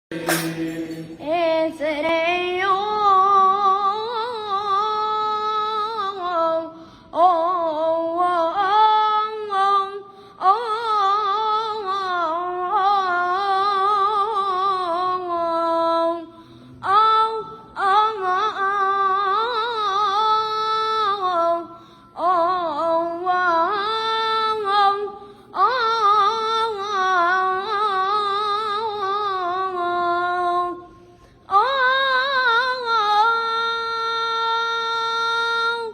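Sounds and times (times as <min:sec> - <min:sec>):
boy breathing: 0:16.3 - 0:16.8.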